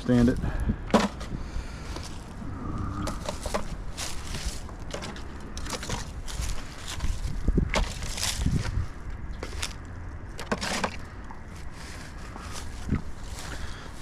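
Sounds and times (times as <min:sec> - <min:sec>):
footsteps through brush: 0:00.0 - 0:14.0
litter crunching: 0:01.0 - 0:14.0.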